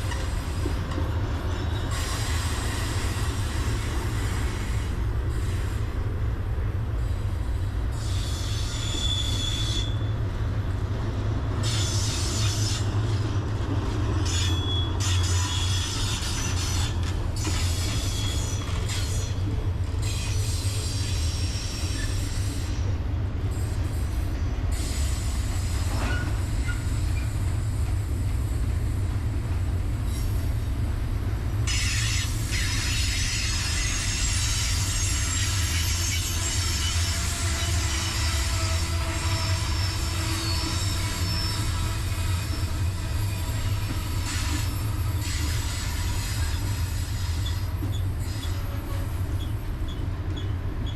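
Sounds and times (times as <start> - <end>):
train wheels rumbling on rail: 0.0 - 50.9
high-pitched wheel squeal: 7.9 - 10.2, 14.2 - 19.4, 31.7 - 50.5.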